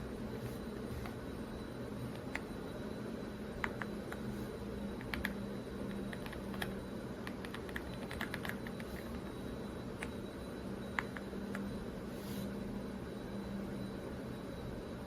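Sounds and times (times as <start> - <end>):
steady background hum: 0.0 - 15.0
mechanical keyboard typing: 6.1 - 8.9.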